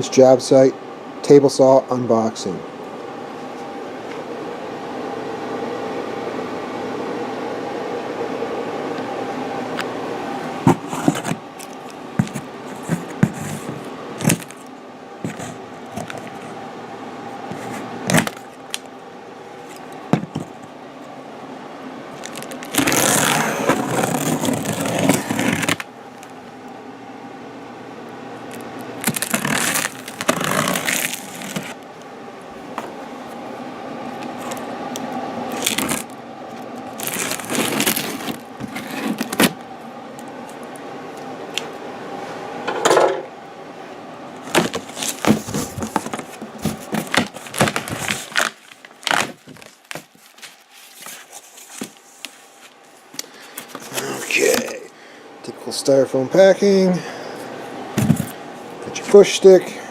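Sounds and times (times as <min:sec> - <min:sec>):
steady hum: 0:00.0 - 0:59.9
cardboard scraping and tearing: 0:10.7 - 0:14.6, 0:15.3 - 0:16.5, 0:17.5 - 0:18.5, 0:22.2 - 0:25.9, 0:29.0 - 0:31.8, 0:35.5 - 0:36.1, 0:36.9 - 0:39.6, 0:44.5 - 0:52.6
cardboard clicks and knocks: 0:12.2 - 0:14.6, 0:44.5 - 0:48.2, 0:58.0 - 0:58.3.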